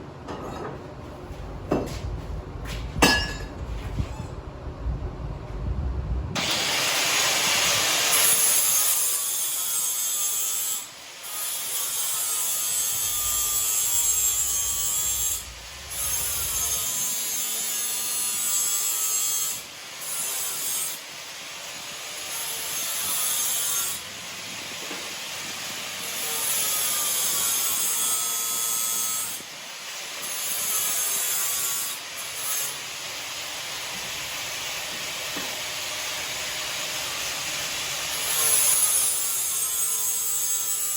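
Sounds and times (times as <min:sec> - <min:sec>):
abrasive tool grinding steel: 0:08.0 - 0:34.3, 0:35.4 - 0:40.9.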